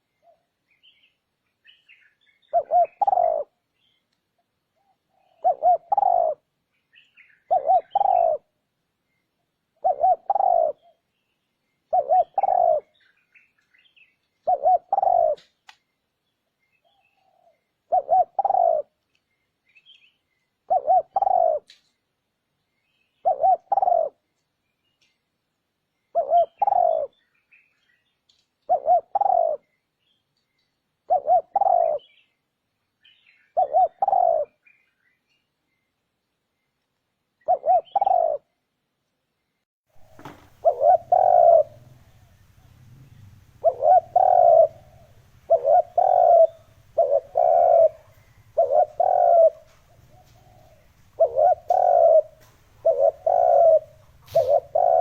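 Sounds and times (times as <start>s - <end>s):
faint bird chirps: 0.0s - 55.0s
dove cooing: 2.4s - 3.6s, 4.8s - 6.5s, 7.4s - 8.6s, 9.8s - 11.0s, 11.9s - 13.0s, 14.4s - 15.5s, 16.8s - 19.0s, 20.6s - 21.8s, 23.2s - 24.2s, 26.1s - 27.2s, 28.7s - 29.7s, 31.0s - 32.2s, 33.5s - 34.6s, 37.4s - 38.5s, 40.0s - 55.0s.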